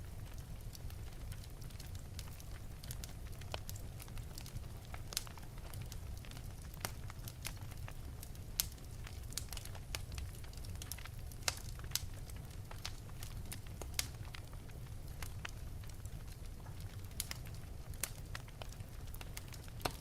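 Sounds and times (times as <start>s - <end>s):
low rumble of flames: 0.0s - 20.0s
wood fire crackling: 0.0s - 20.0s
sharp pops and snaps: 18.0s - 20.0s.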